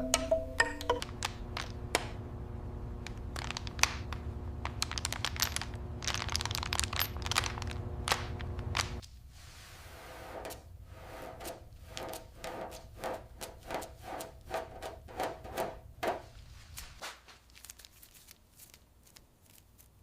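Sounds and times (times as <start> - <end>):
crackling and crinkling clicks: 0.9 - 2.3, 2.9 - 9.1
steady low hum: 1.0 - 13.4.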